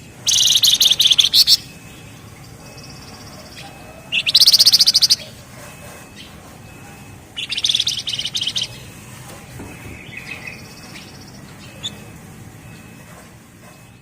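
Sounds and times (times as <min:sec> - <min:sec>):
soft high bird trills: 0:00.0 - 0:09.1
bird rattling trill: 0:00.2 - 0:09.0.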